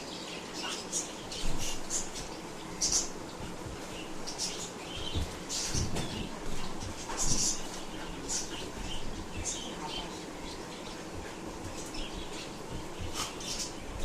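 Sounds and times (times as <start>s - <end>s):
dog sniffing: 13.0s - 13.7s.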